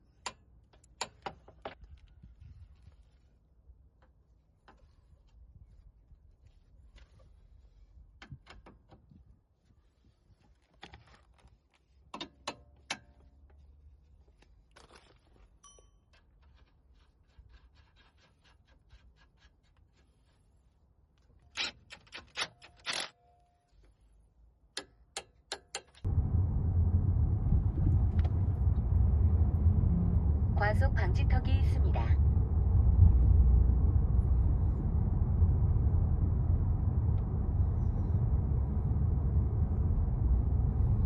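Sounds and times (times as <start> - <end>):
car engine low rumble: 26.0 - 41.0.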